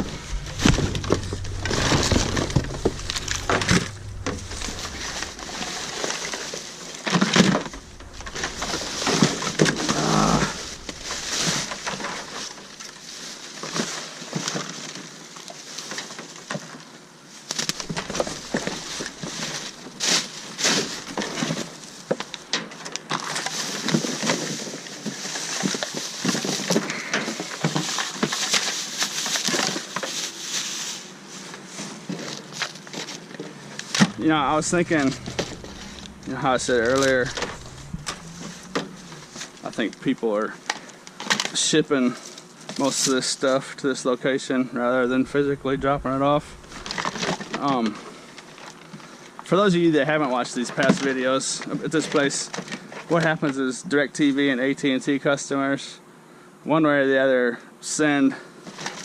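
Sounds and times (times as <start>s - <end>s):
garbage bags and cardboard rustling: 17.4s - 34.2s.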